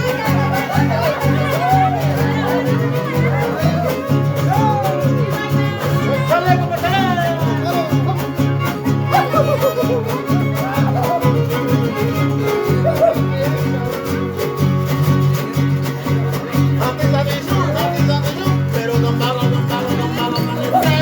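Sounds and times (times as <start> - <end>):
violin melody with slides: 0.0 - 16.6
strummed guitars: 0.0 - 21.0.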